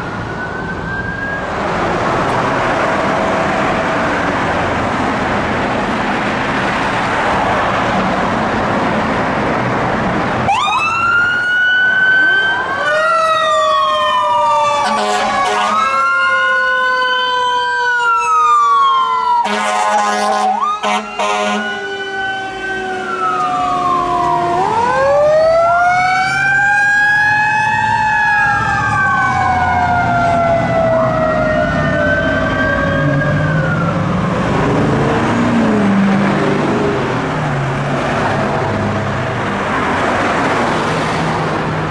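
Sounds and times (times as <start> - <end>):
siren yelp: 0.0 - 1.8, 10.4 - 34.3
fire engine rumble: 0.0 - 41.9
wailing sirens: 0.0 - 41.9.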